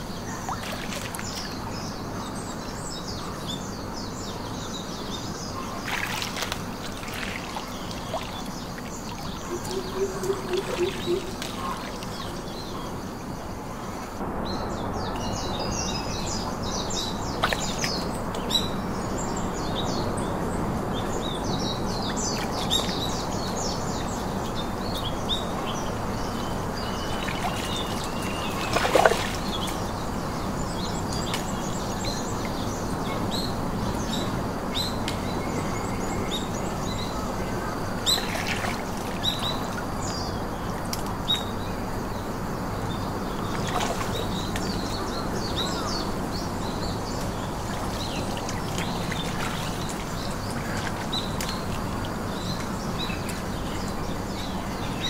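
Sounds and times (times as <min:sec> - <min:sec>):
small birds chirping: 0:00.0 - 0:14.2, 0:14.9 - 0:55.0
water trickling: 0:05.3 - 0:12.8, 0:25.8 - 0:33.4, 0:43.3 - 0:54.6
low pulsed bird call: 0:09.2 - 0:12.8.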